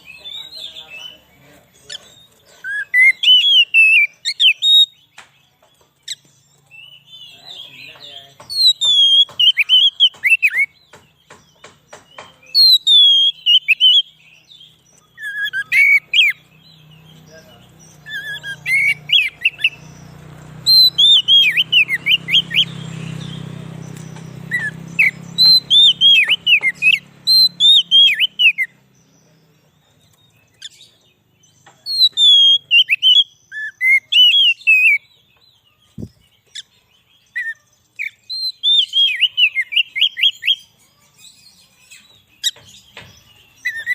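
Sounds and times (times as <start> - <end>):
magpie-robin singing: 0.0 - 43.9.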